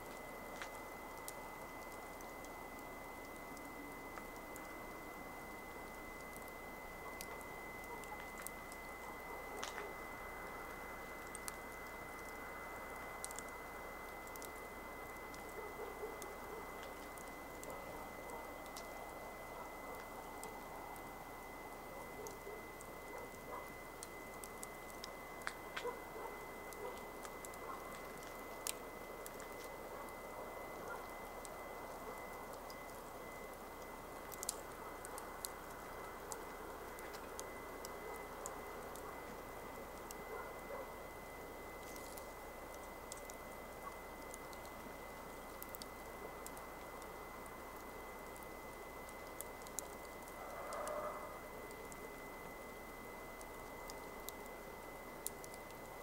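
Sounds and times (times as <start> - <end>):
thin high whine: 0.0 - 55.9
campfire crackling and popping: 0.0 - 56.0
soft steady hiss: 0.0 - 56.0.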